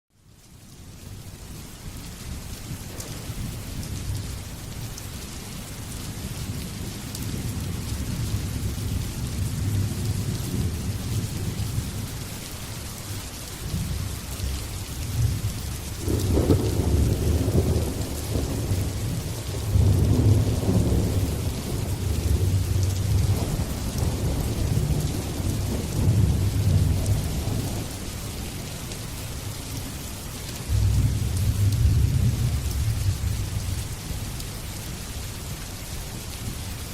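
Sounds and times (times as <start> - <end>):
steady rain: 0.1 - 36.9
rolling thunder: 2.7 - 4.5, 6.4 - 12.0, 13.6 - 28.1, 30.7 - 34.3.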